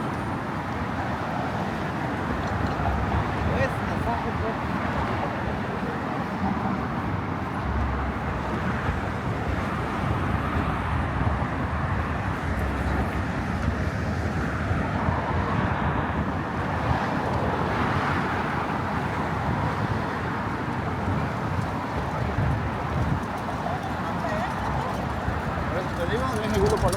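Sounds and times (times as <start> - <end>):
road traffic rumble: 0.0 - 26.9.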